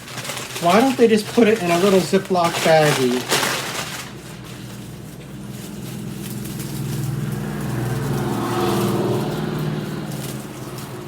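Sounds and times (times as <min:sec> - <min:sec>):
motor vehicle engine passing: 0:04.0 - 0:11.0.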